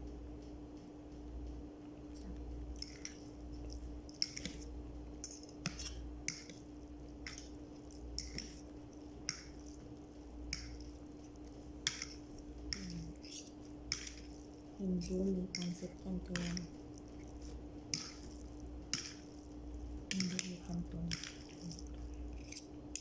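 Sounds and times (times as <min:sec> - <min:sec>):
steady low hum: 0:00.0 - 0:23.0
wet chewing smacks: 0:02.4 - 0:04.8, 0:16.4 - 0:22.5.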